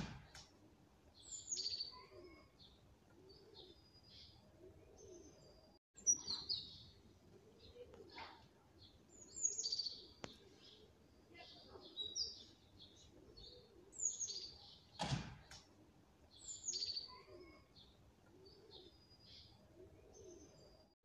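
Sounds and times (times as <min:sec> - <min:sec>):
thump: 0:00.0 - 0:00.4, 0:15.0 - 0:15.6
small songbird chirping: 0:01.1 - 0:07.8, 0:08.8 - 0:15.0, 0:16.3 - 0:21.0.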